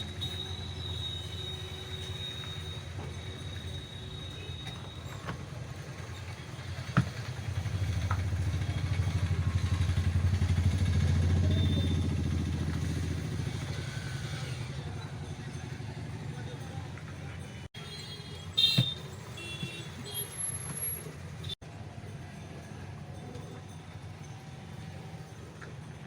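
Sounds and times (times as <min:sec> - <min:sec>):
motorcycle passing by: 0:07.3 - 0:15.6.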